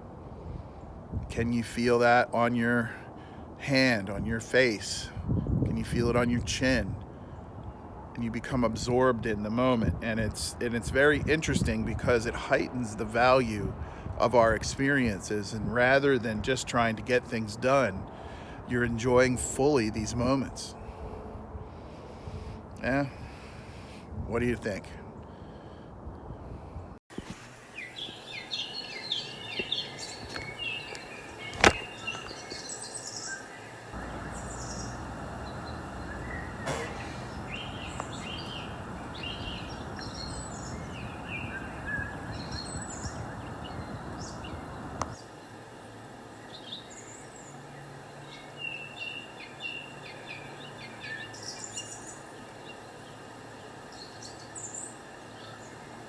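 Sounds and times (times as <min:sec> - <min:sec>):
birds chirping: 0:27.7 - 0:45.6
steady noise: 0:33.9 - 0:46.3.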